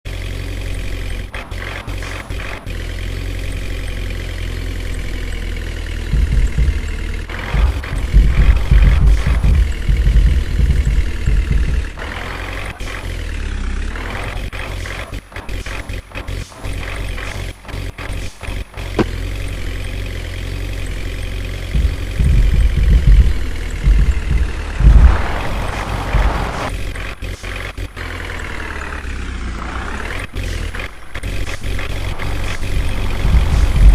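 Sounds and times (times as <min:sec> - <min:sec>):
truck diesel engine running: 0:00.0 - 0:33.9.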